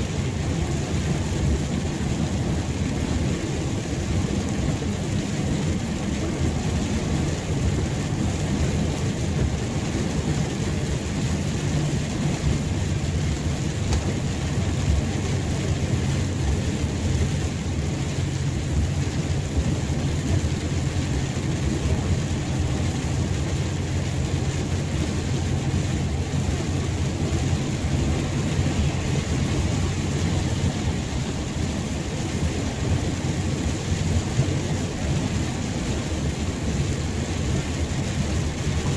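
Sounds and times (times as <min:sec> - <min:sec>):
heavy rain falling: 0:00.0 - 0:38.9
low rumble: 0:10.1 - 0:38.2.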